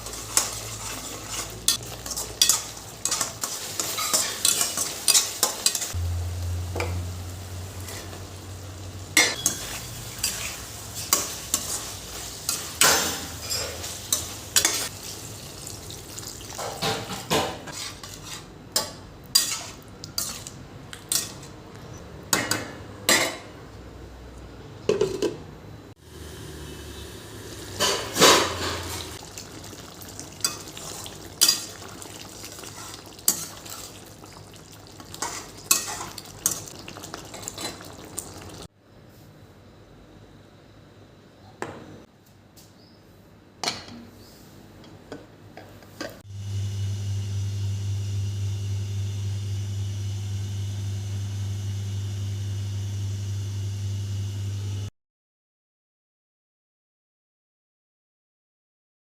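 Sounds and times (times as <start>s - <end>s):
metal spoon scraping a pan: 0.0s - 6.0s, 7.8s - 8.2s, 9.2s - 14.9s, 16.6s - 21.5s, 27.7s - 29.2s, 30.4s - 34.0s, 35.1s - 36.7s
faint sizzle: 0.0s - 18.5s, 26.0s - 39.2s, 46.3s - 54.9s
low hum: 6.0s - 9.2s.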